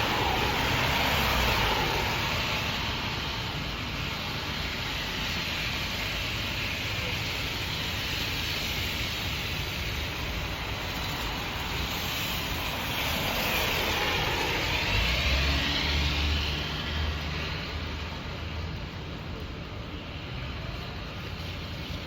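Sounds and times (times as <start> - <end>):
road noise: 0.0 - 22.0
rushing wind: 0.0 - 22.0.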